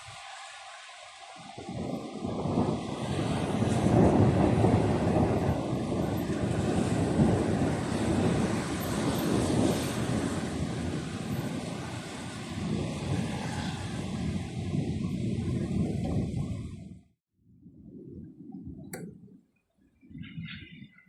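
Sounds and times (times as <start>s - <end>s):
thunder rumbling: 1.5s - 17.0s.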